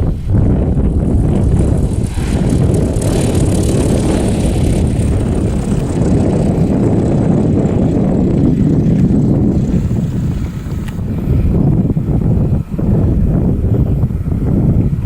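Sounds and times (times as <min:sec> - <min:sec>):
propeller aircraft engine running: 0:00.0 - 0:15.0
wind rumbling on microphone: 0:00.0 - 0:15.0
hiss: 0:09.5 - 0:11.3.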